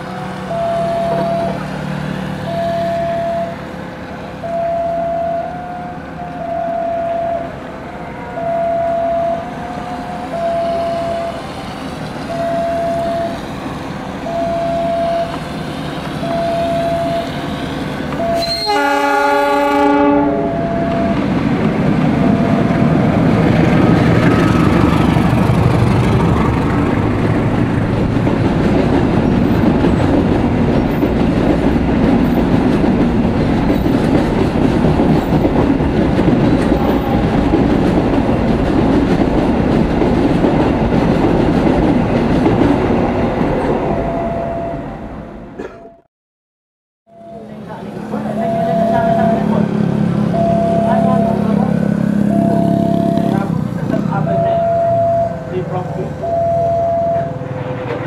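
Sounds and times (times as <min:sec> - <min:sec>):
freight train rumbling past: 0:00.0 - 0:45.7, 0:47.1 - 0:58.0
level-crossing warning bell: 0:00.4 - 0:01.7, 0:02.4 - 0:03.8, 0:04.4 - 0:13.5, 0:14.2 - 0:15.5, 0:16.2 - 0:17.5, 0:18.1 - 0:21.4, 0:22.1 - 0:25.4, 0:43.6 - 0:45.0, 0:47.1 - 0:57.6
locomotive horn: 0:00.5 - 0:01.6, 0:02.4 - 0:03.6, 0:04.4 - 0:11.5, 0:14.2 - 0:15.4, 0:16.2 - 0:17.5, 0:18.1 - 0:21.2, 0:22.1 - 0:23.1, 0:47.1 - 0:53.5
wheels clacking over rail joints: 0:20.8 - 0:43.9.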